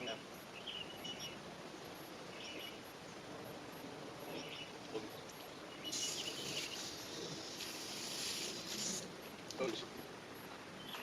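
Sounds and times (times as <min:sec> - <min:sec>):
steady hiss: 0:00.0 - 0:11.0
short high bird chirps: 0:05.8 - 0:07.0.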